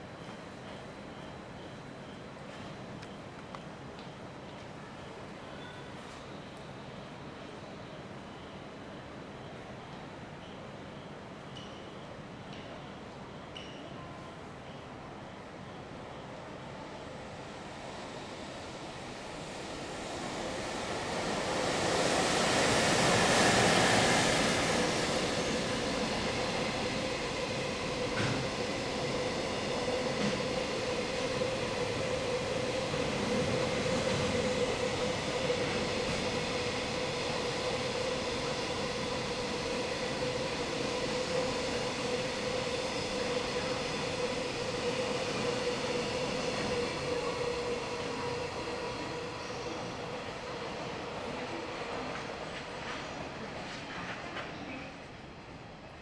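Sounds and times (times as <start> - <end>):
rail joint clacks: 51.9 - 55.0.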